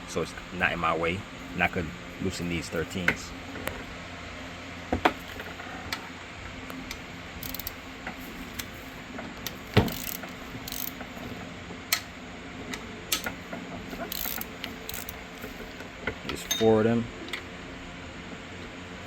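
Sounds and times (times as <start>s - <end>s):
ratchet wrench clicking: 6.9s - 7.8s, 9.4s - 11.0s, 14.0s - 15.5s
metal tools clanking: 16.3s - 17.0s.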